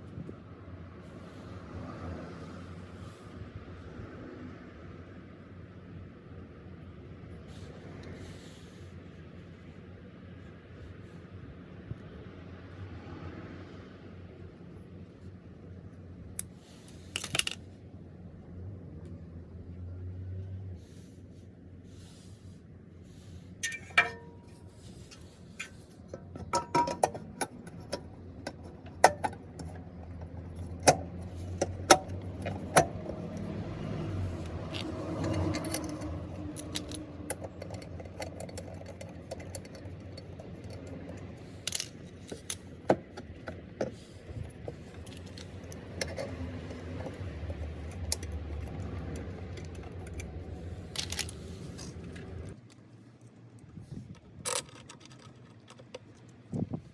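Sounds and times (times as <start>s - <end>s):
metal tools clinking: 23.6s - 28.0s, 34.3s - 42.7s
low hum: 23.6s - 42.3s.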